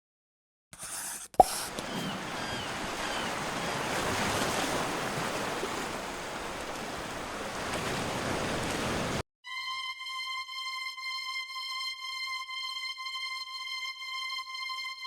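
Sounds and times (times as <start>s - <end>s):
wind: 1.4s - 9.2s
sea waves washing onto shore: 1.6s - 9.2s.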